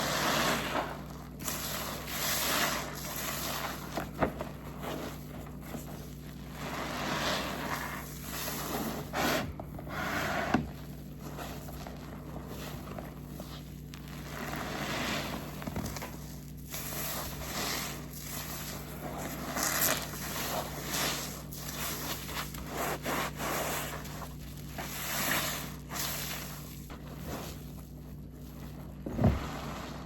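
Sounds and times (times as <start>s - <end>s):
wet sponge squelching: 0.0s - 30.0s.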